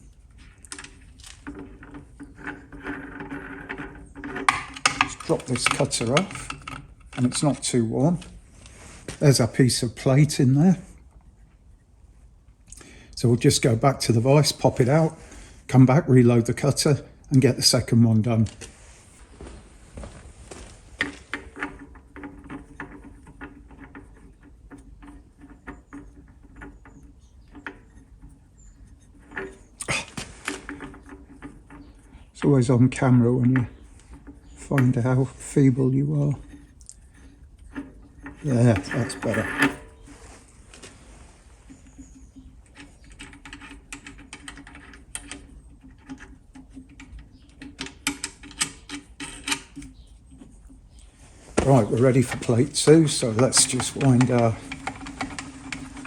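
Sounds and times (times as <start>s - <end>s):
metal tools clattering: 0.6s - 8.2s, 21.0s - 41.0s, 41.6s - 56.0s.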